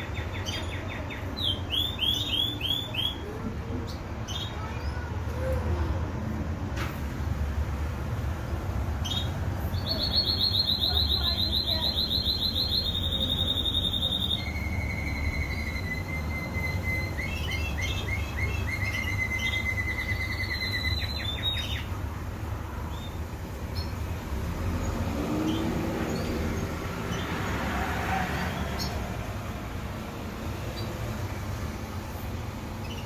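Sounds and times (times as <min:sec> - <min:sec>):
canary singing in trills: 0:00.0 - 0:05.6, 0:09.0 - 0:29.2, 0:30.5 - 0:31.6, 0:32.7 - 0:33.0.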